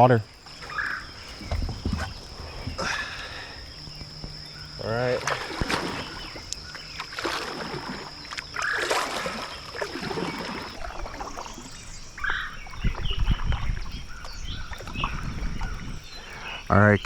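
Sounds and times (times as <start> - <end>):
water splashing and trickling: 0.0 - 16.5
low thumps: 1.2 - 4.5.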